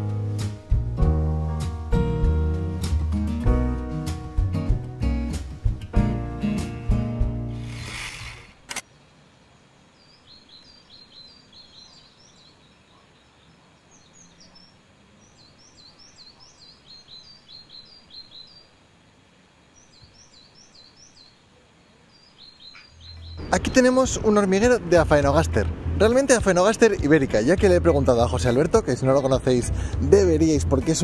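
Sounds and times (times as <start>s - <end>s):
faint outdoor hiss: 0.0s - 31.0s
sharp click: 7.6s - 8.9s
songbird chirping: 7.6s - 24.8s.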